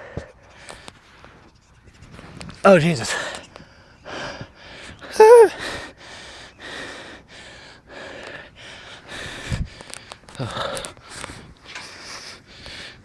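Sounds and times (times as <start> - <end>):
man groaning: 5.2 - 5.6.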